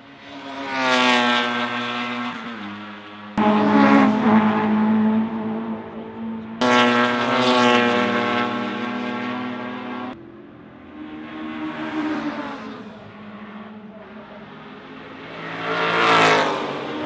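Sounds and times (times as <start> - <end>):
racing car engines passing: 0.0 - 17.0.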